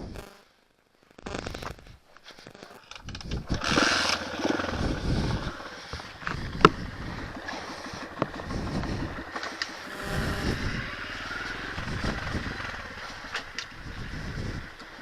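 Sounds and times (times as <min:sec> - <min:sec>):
motorbike engine running: 0:03.4 - 0:15.0.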